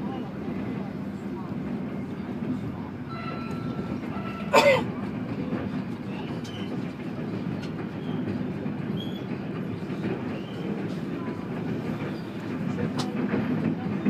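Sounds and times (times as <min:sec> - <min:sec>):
train rumble inside carriage: 0:00.0 - 0:14.0.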